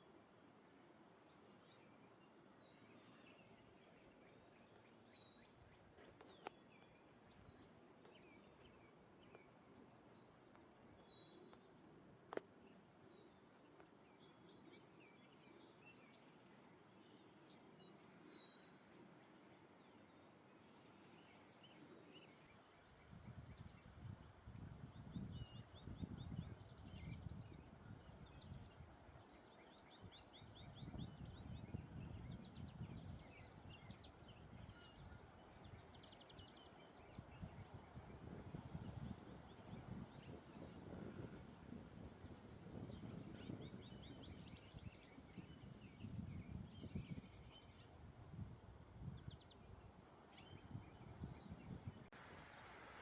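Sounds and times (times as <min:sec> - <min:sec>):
wind buffeting microphone: 0:23.0 - 0:28.9, 0:30.0 - 0:36.2, 0:37.0 - 0:52.2.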